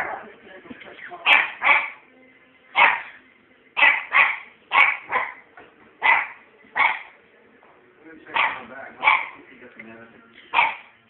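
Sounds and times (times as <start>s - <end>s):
puppy barking: 1.2s - 2.0s, 2.8s - 3.2s, 3.8s - 7.2s, 8.3s - 9.4s, 10.5s - 11.0s.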